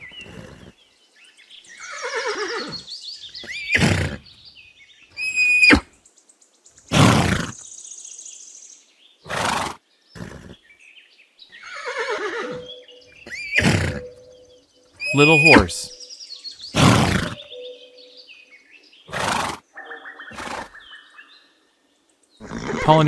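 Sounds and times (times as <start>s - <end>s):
horse breathy snorts: 0.0s - 0.8s, 3.4s - 4.3s, 6.9s - 7.6s, 9.3s - 10.6s, 13.5s - 14.1s, 16.7s - 17.4s, 19.1s - 19.6s
horse whinnying: 1.8s - 4.3s, 5.2s - 5.9s, 6.9s - 7.6s, 9.3s - 10.6s, 11.6s - 14.2s, 15.0s - 15.9s, 16.7s - 17.4s, 19.1s - 19.6s, 20.3s - 20.8s, 22.4s - 23.0s.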